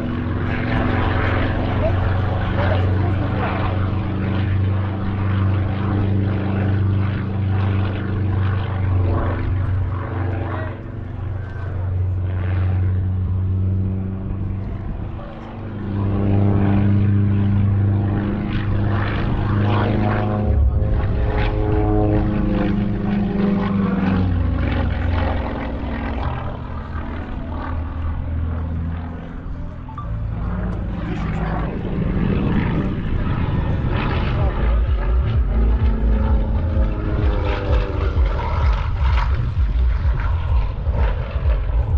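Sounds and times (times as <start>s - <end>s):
aircraft piston engine droning: 0.0s - 41.9s
propeller plane flying past: 0.0s - 41.9s.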